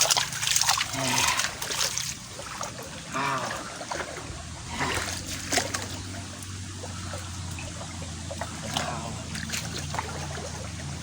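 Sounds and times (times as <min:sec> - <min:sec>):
hands splashing in shallow water: 0:00.0 - 0:04.2
water trickling: 0:00.0 - 0:11.0.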